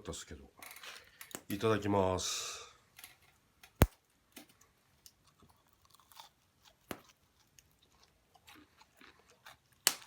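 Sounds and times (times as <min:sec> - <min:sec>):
person chewing crisp food: 0:05.1 - 0:10.0.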